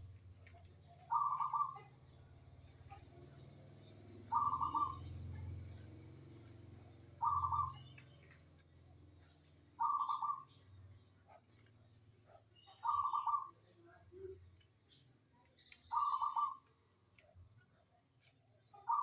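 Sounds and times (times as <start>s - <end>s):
dove cooing: 0.3s - 8.0s, 9.8s - 10.6s, 12.7s - 13.5s, 15.9s - 16.6s, 18.8s - 19.0s.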